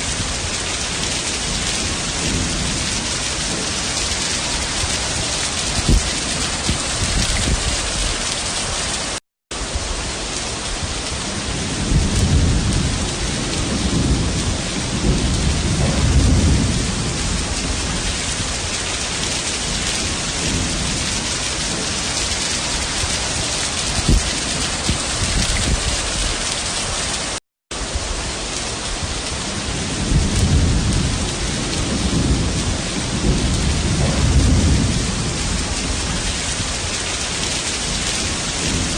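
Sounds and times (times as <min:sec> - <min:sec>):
heavy rain pouring: 0:00.0 - 0:38.9
low rumbles: 0:11.5 - 0:18.8, 0:29.8 - 0:37.0.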